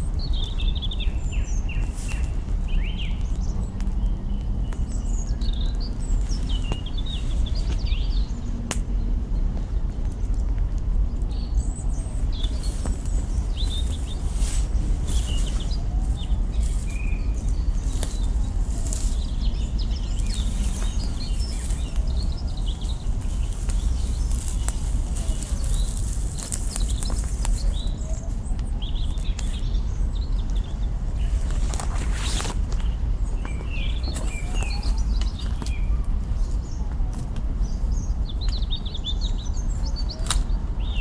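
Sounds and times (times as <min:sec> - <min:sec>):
small birds chirping: 0:00.0 - 0:41.0
campfire crackling and popping: 0:09.8 - 0:35.7.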